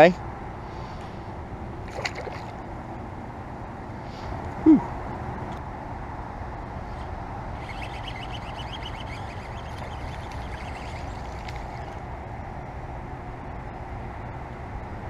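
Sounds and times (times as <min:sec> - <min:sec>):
outdoor background noise: 0:00.0 - 0:15.0
bird chirping: 0:07.6 - 0:12.0.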